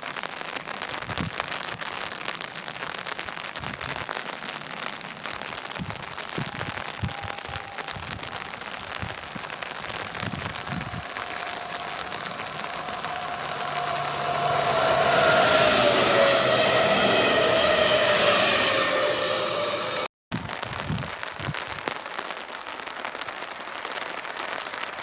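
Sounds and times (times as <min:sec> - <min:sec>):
crackling hiss: 0:00.0 - 0:25.0
electric train whine: 0:09.2 - 0:20.1.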